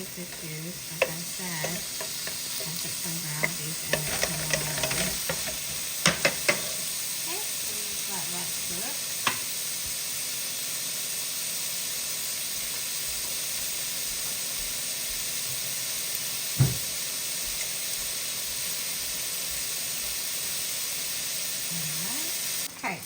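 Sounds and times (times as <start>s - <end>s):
steak sizzling: 0.0s - 23.0s.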